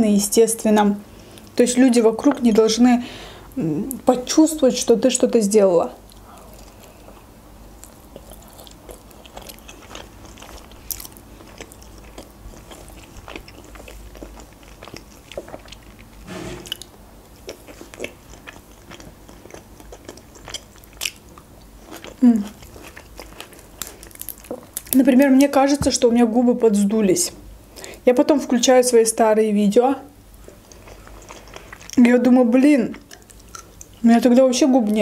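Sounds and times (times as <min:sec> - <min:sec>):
chewing: 0:06.0 - 0:25.5, 0:30.4 - 0:32.0, 0:32.9 - 0:34.0.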